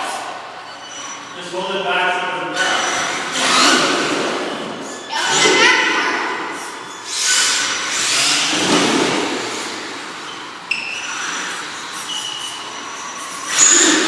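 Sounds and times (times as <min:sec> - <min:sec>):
small motors whining: 0:00.0 - 0:14.0.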